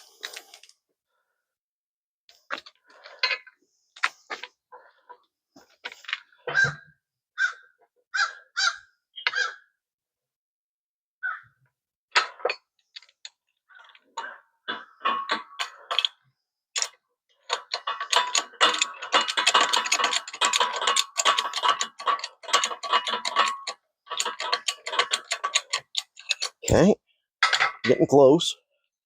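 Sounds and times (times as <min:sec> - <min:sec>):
ratchet wrench clicking: 0:17.5 - 0:26.6.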